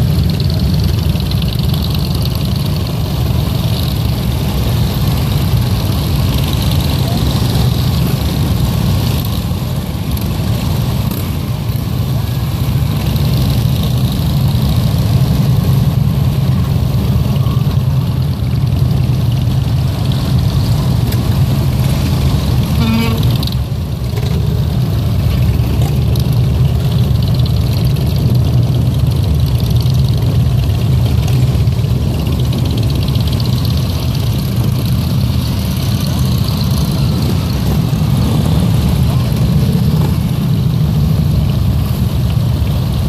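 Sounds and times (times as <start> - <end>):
vehicle engines running: 0.0 - 43.0.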